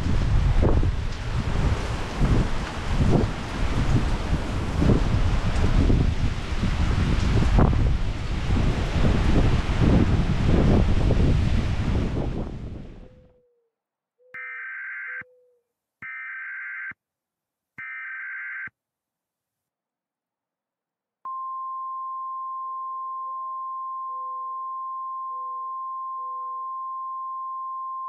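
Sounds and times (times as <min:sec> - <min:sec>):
steady alarm tone: 0:14.4 - 0:15.3, 0:17.8 - 0:18.7.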